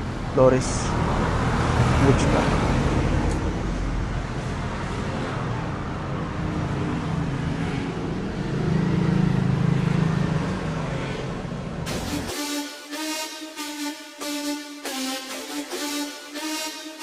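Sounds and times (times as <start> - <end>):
road traffic rumble: 0.0 - 12.1.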